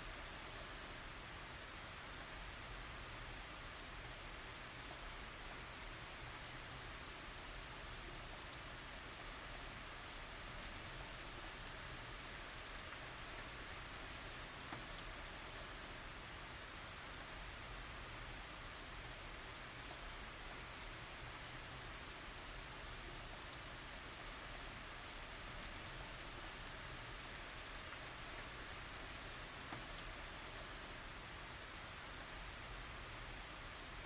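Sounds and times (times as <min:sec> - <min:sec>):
gentle rain hiss: 0:00.0 - 0:34.0
raindrops ticking: 0:06.4 - 0:16.0, 0:17.0 - 0:31.0.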